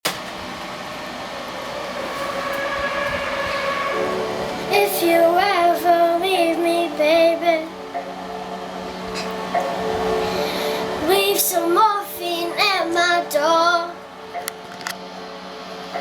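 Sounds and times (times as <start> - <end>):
sustained chords: 0.2 - 12.4
wordless sung melody: 1.2 - 14.2.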